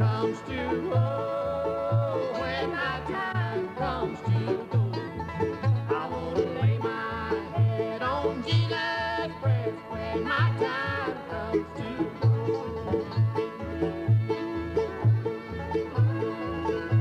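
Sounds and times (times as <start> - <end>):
banjo picking: 0.0 - 17.0.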